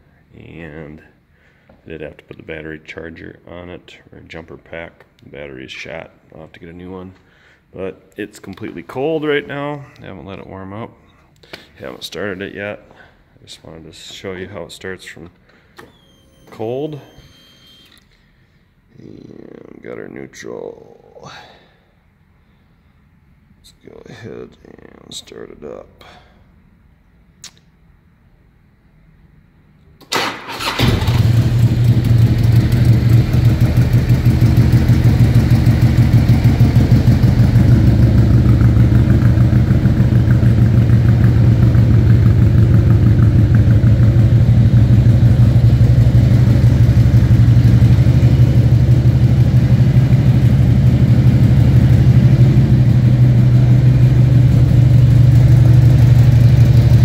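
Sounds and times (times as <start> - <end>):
motorcycle engine cranking: 30.0 - 34.0
motorcycle engine idling: 30.6 - 57.0.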